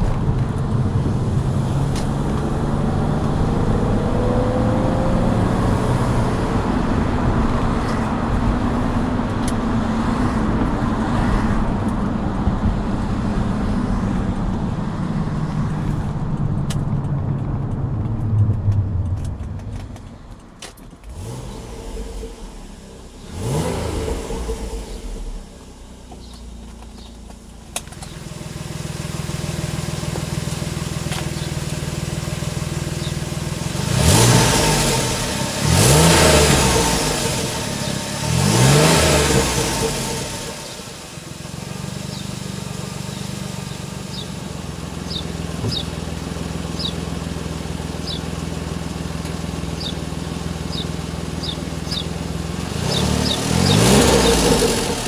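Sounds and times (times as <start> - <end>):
car engine idling and revving: 0.0 - 55.0
leaking exhaust noise: 11.5 - 28.8.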